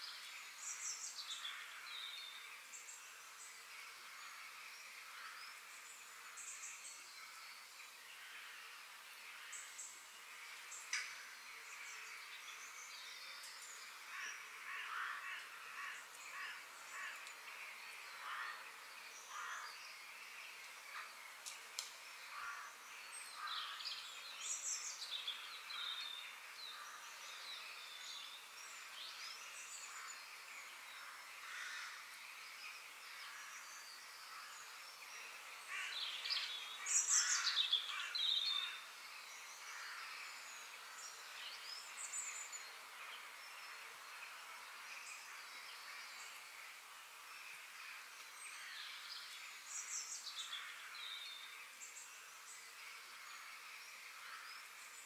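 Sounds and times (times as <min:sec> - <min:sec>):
faint steady hiss: 0:00.0 - 0:55.0
wild birds chirping and singing: 0:00.0 - 0:55.0.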